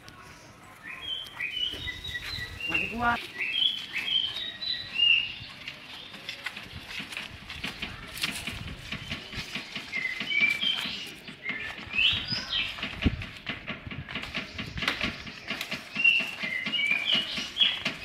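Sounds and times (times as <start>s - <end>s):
small birds chirping: 0.0s - 18.0s
sharp knocks and clicks: 6.6s - 18.0s.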